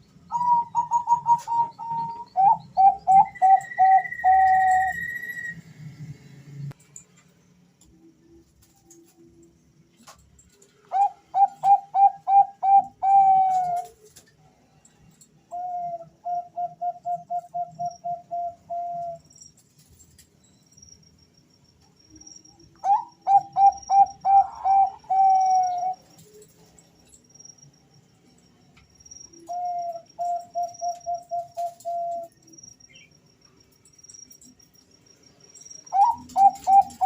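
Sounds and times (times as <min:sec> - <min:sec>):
doves cooing: 0:00.3 - 0:05.3, 0:10.9 - 0:14.1, 0:22.8 - 0:26.2, 0:35.9 - 0:37.0.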